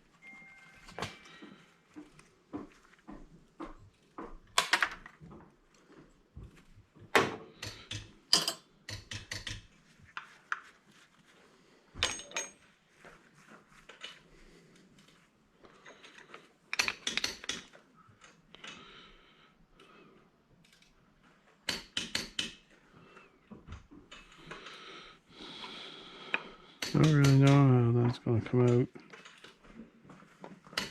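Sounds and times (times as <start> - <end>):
metal parts and tools clinking: 7.6 - 9.6, 12.0 - 12.7, 15.8 - 18.4.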